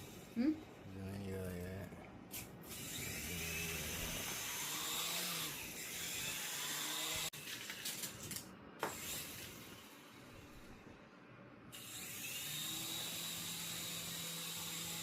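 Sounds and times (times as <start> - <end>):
toy helicopter motors whirring: 2.6 - 8.1, 8.8 - 10.0, 11.8 - 15.0.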